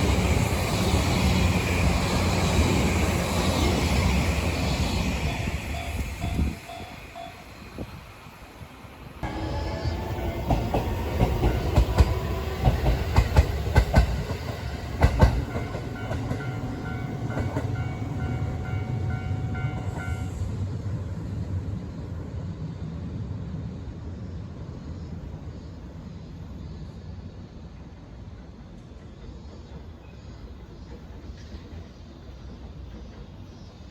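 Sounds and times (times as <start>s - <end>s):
train wheels clacking on rails: 0.0s - 7.8s, 9.2s - 20.6s
held train tones: 0.0s - 33.9s
train rumble: 0.0s - 33.9s.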